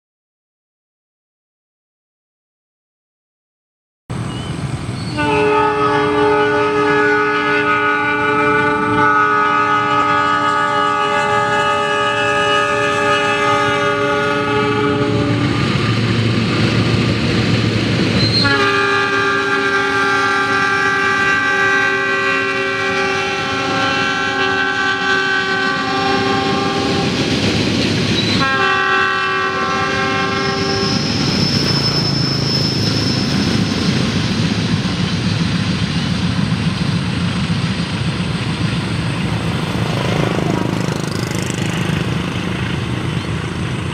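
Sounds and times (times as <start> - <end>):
locomotive engine rumble: 4.1 - 43.9
locomotive horn blasts: 5.1 - 15.8, 18.2 - 27.2, 28.2 - 31.1
train wheels clattering on rails: 26.1 - 28.8, 30.5 - 43.9.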